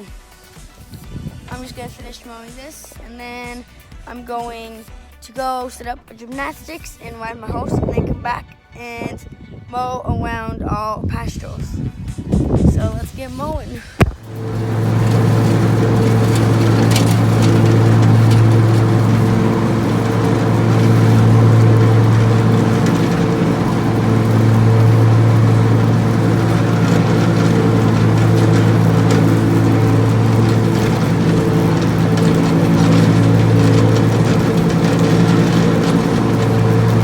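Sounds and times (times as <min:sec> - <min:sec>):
riding lawn mower engine: 0:14.1 - 0:37.0.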